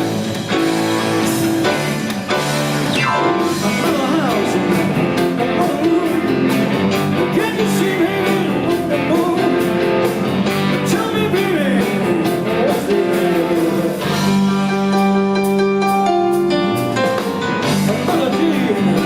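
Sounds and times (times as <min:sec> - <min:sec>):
blues-rock band playing: 0:00.0 - 0:19.0
guitar with bending notes: 0:00.0 - 0:19.0.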